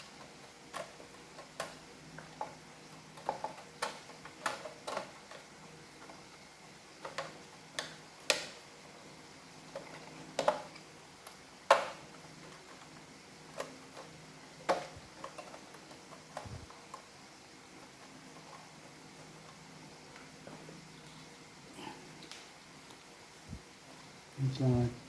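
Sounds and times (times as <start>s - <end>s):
plastic parts clicking and tapping: 0.1s - 6.2s, 7.0s - 8.6s, 9.7s - 12.9s, 13.5s - 17.1s.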